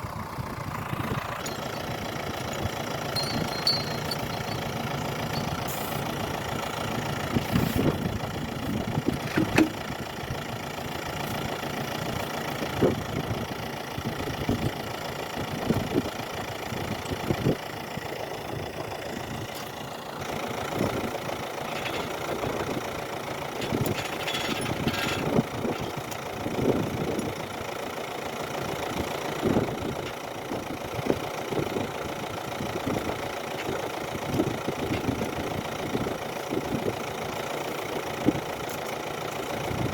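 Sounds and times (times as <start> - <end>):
engine idling: 0.0 - 39.9
knocks and clunks: 9.2 - 9.8.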